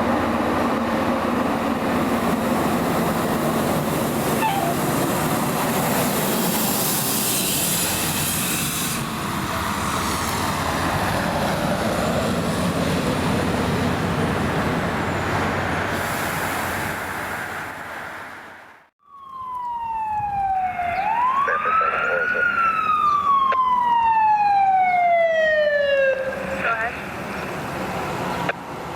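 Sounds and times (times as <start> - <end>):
rush of vehicle noise: 0.0 - 18.9, 24.8 - 28.9
emergency siren wailing: 3.3 - 5.8, 19.0 - 27.2.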